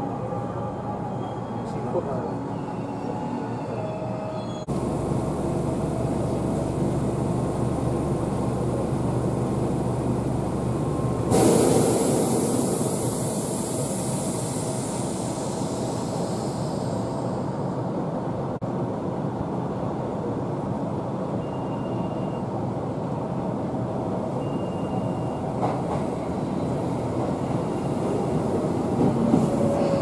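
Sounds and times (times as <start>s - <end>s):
train wheels and motors rumbling: 4.6s - 18.6s, 23.1s - 30.0s.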